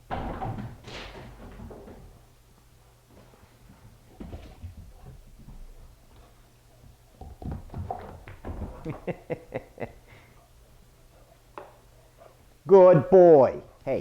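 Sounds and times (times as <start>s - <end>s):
puppy paws running on hard floor: 0.1s - 2.4s, 3.1s - 9.2s.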